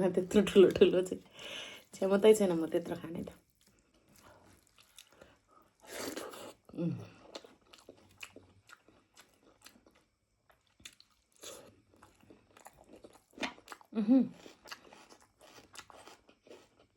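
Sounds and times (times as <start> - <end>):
person chewing meat: 3.4 - 16.9.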